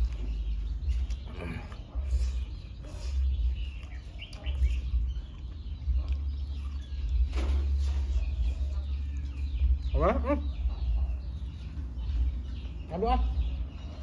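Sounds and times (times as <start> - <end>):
birds chirping: 0.0 - 14.0
steady low hum: 0.0 - 14.0.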